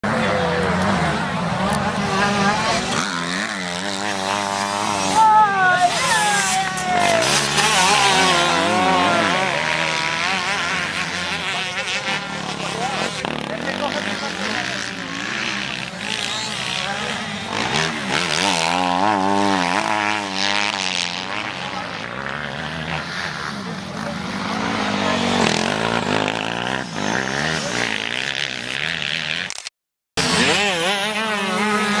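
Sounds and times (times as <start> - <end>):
motorcycle engines revving: 0.0 - 29.5, 30.2 - 32.0.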